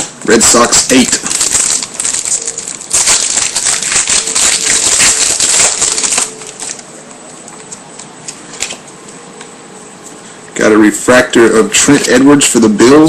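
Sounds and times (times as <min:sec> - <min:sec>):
trading cards rustling: 0:00.7 - 0:08.9.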